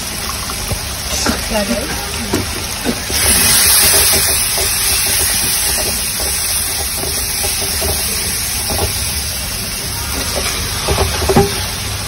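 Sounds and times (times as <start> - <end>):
masala sizzling in hot oil: 0.0 - 12.0
spatula stirring: 2.2 - 11.8.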